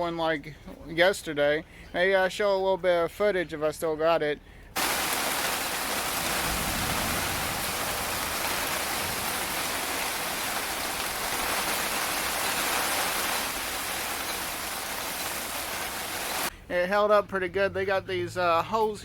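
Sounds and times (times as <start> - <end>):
heavy rain pouring: 4.8 - 16.5.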